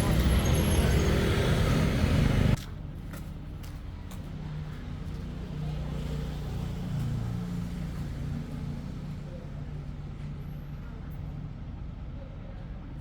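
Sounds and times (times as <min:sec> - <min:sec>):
engine humming: 0:00.0 - 0:02.6.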